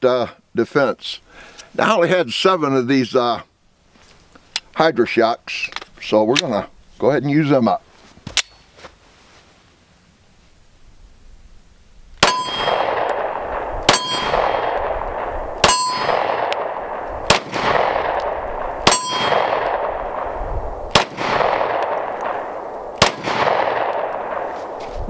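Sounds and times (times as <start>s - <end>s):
steel target clanging and ringing: 12.2s - 13.3s, 13.9s - 14.8s, 15.6s - 16.8s, 18.0s - 19.9s
pistol shots: 12.2s - 24.8s.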